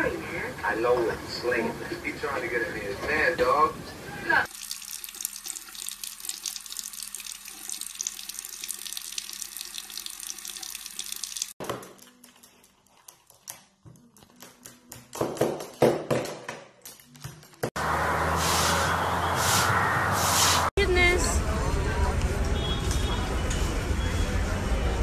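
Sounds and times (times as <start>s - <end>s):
tap water running into sink: 4.5s - 11.6s.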